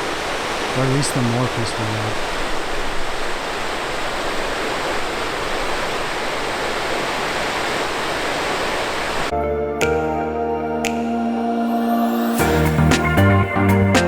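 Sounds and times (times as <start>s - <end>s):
water rushing over rocks: 0.0s - 9.3s
background music: 9.3s - 14.0s.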